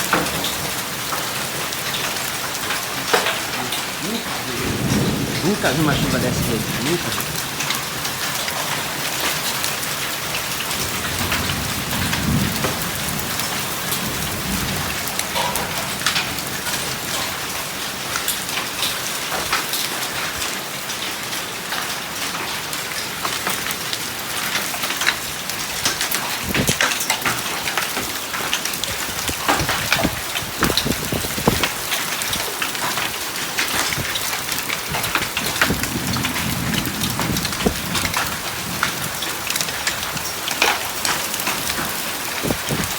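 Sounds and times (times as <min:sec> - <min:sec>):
hailstones striking hard surfaces: 0:00.0 - 0:42.9
heavy rain: 0:00.0 - 0:42.9
thunder rumbling: 0:01.6 - 0:09.6, 0:10.5 - 0:17.6, 0:34.9 - 0:42.9.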